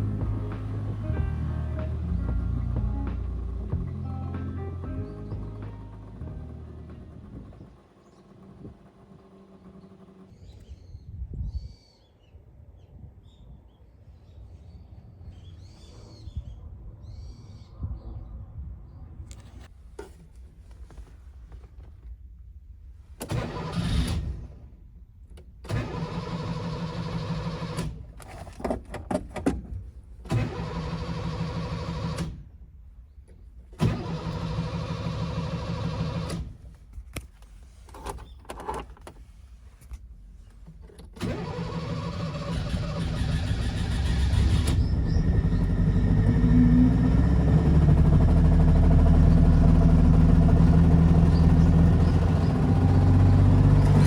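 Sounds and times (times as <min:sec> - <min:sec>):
two-stroke engine running: 0:00.0 - 0:10.3, 0:41.6 - 0:54.0
engine cranking and sputtering: 0:00.0 - 0:10.4, 0:25.7 - 0:28.8, 0:30.3 - 0:32.4, 0:33.7 - 0:37.1, 0:40.6 - 0:54.0.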